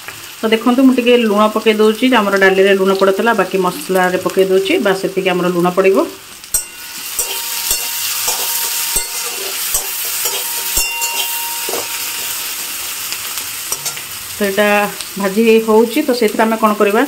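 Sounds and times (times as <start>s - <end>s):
onions sizzling in hot oil: 0.0s - 17.0s
spatula scraping against pan: 6.6s - 14.3s.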